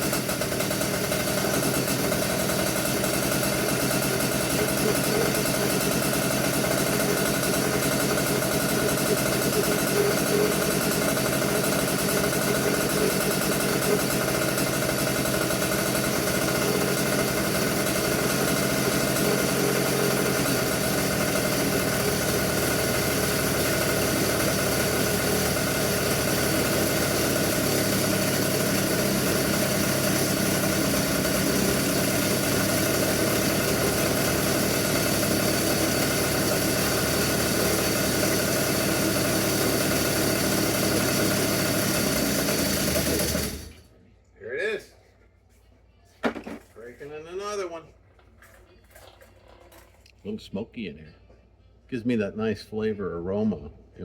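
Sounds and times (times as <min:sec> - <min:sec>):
two-stroke kart engine running: 0:00.0 - 0:43.8.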